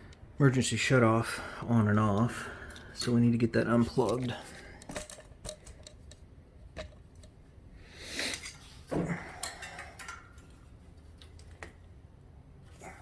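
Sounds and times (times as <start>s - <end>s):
metallic clicks and rattles of tools: 3.8s - 7.4s, 9.3s - 11.8s.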